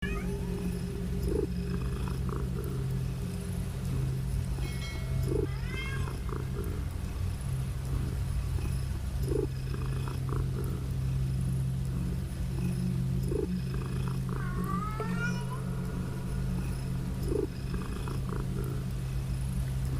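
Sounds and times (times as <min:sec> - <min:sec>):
cat meowing: 0:00.0 - 0:00.5, 0:05.3 - 0:06.5, 0:14.3 - 0:15.6
cat purring: 0:00.0 - 0:19.9.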